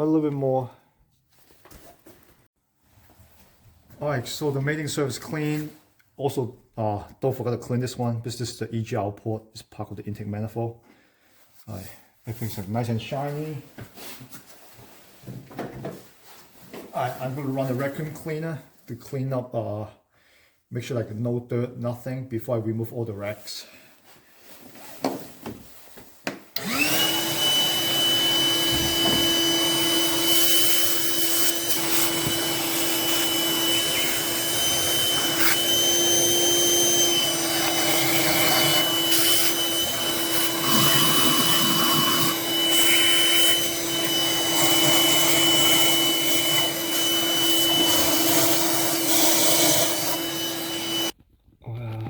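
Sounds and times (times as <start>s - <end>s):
vacuum cleaner running: 26.6s - 51.2s.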